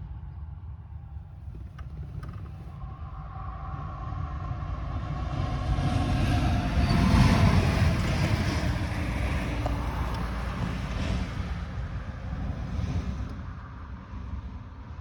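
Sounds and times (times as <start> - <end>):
wind buffeting microphone: 1.0 - 15.0
tractor diesel engine running: 1.2 - 3.0, 5.9 - 13.5.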